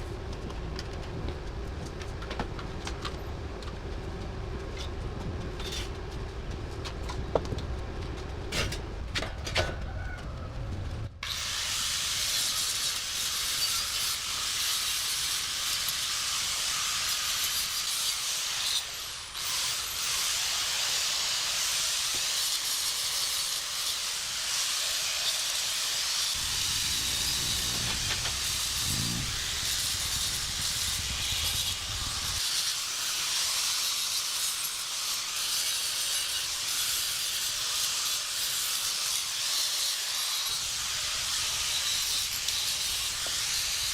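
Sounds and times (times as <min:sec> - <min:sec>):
hiss of rushing air: 0:23.3 - 0:34.1
low rumble: 0:26.4 - 0:31.2.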